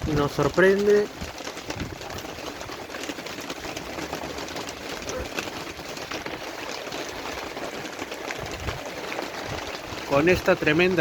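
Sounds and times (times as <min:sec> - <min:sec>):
heavy rain falling: 0:04.0 - 0:11.0.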